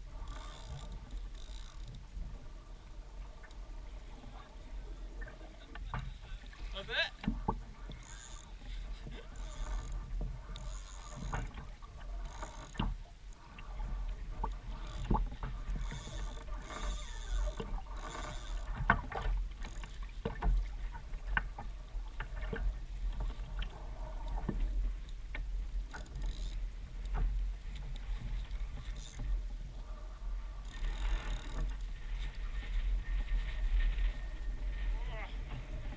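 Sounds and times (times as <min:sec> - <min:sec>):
water lapping against kayak: 0:00.0 - 0:35.9
wind rumble on microphone: 0:00.0 - 0:35.9.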